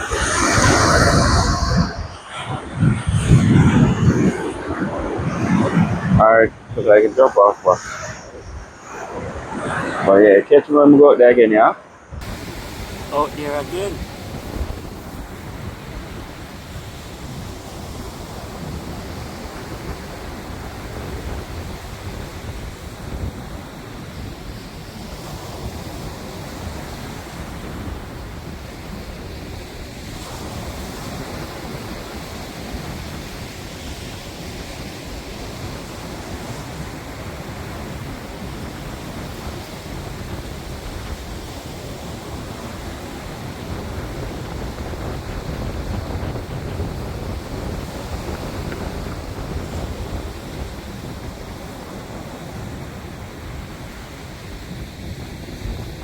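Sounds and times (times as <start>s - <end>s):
sea waves: 0.0s - 2.5s, 11.8s - 16.6s
wind rumbling on microphone: 0.0s - 56.0s.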